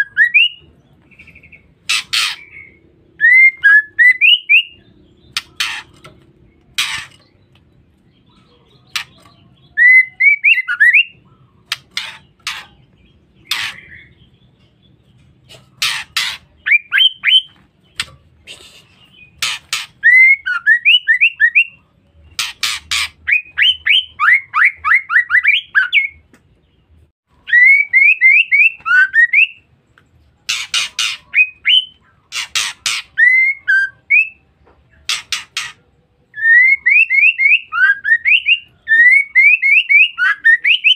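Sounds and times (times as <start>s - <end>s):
bird rasping chatter: 1.2s - 2.8s, 4.2s - 7.5s, 8.8s - 9.5s, 11.6s - 14.3s, 15.1s - 20.6s, 22.3s - 24.0s, 30.4s - 33.4s, 34.9s - 35.9s.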